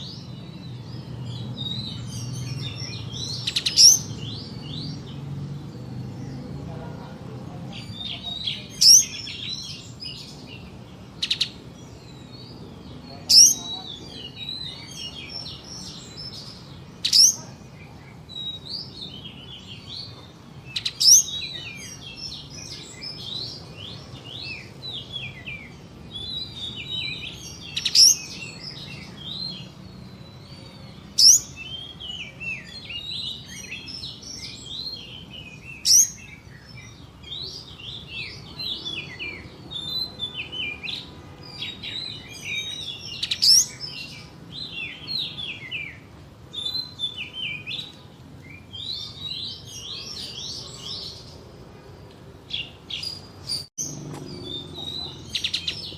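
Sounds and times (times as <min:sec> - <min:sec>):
songbird twittering: 0:00.0 - 0:51.4, 0:52.5 - 0:55.9.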